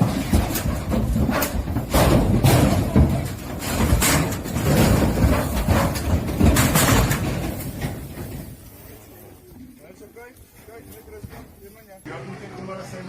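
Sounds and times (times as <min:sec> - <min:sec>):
knocks and bangs: 0:00.0 - 0:08.7
truck engine rumbling: 0:00.0 - 0:09.5.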